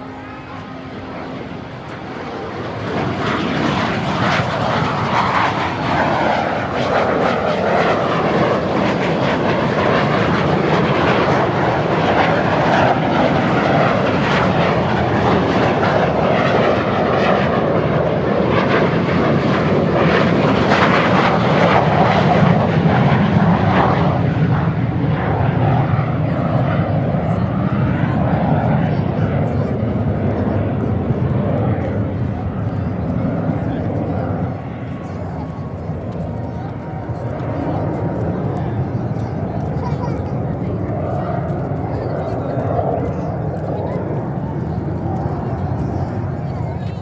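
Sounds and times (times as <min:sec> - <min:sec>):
jet engines at takeoff: 0:00.0 - 0:47.0.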